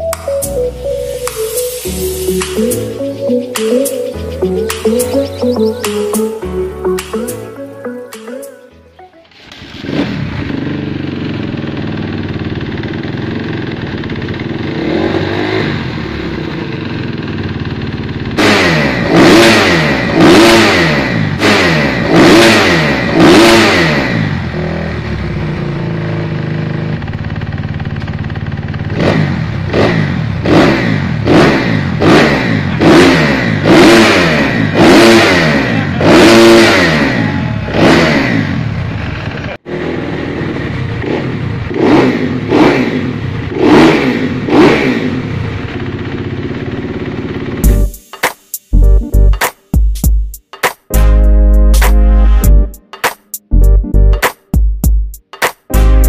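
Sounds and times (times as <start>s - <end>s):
engine revving in throttle blips: 9.4s - 17.2s, 18.3s - 27.0s, 28.7s - 46.2s.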